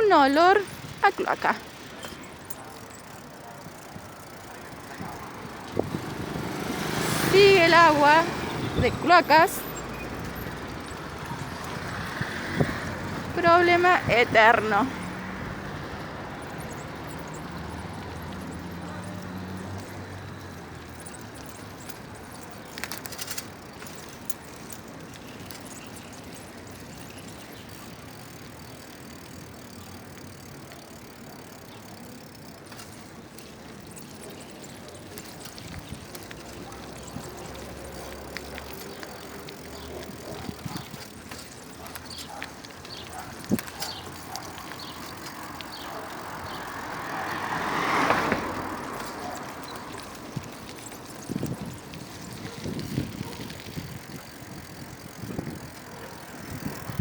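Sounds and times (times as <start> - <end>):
vehicle passing: 0.0 - 57.0
light clicks and rattles: 16.4 - 57.0.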